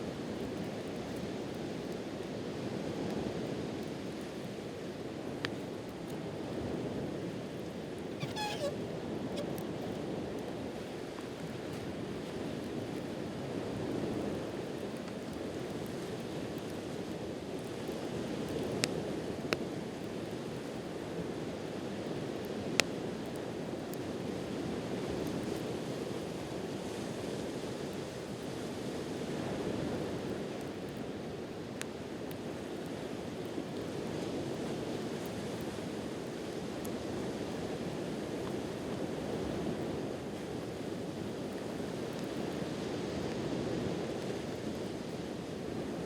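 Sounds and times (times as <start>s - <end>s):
campfire popping: 7.6s - 10.5s.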